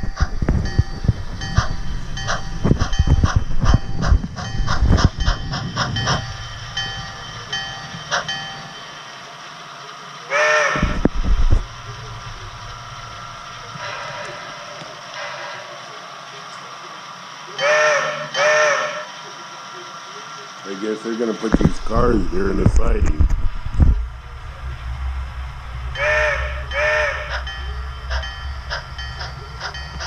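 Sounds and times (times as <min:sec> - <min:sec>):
metal clanks and squealing: 0:00.0 - 0:08.8, 0:10.7 - 0:15.8, 0:25.9 - 0:30.0
freight cars rolling on track: 0:00.0 - 0:30.0
short train whistle blast: 0:10.3 - 0:11.0, 0:17.6 - 0:19.1, 0:26.0 - 0:27.4.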